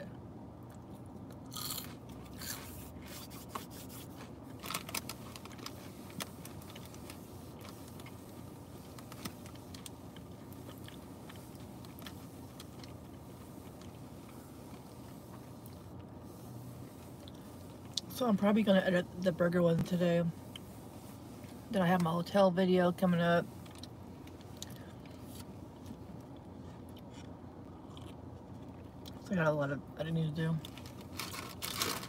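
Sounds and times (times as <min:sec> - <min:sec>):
low hum inside a car: 0:00.0 - 0:32.0
person chewing food: 0:00.7 - 0:04.4, 0:09.7 - 0:14.0, 0:23.6 - 0:29.2.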